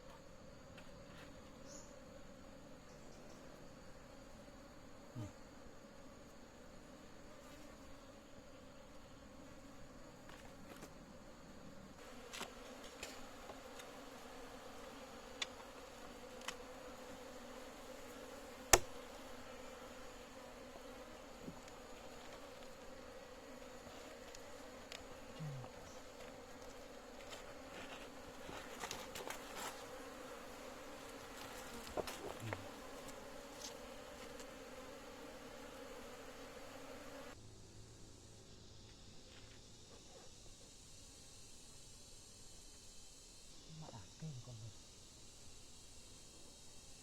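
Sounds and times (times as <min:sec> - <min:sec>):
insects buzzing: 0:00.0 - 0:47.0.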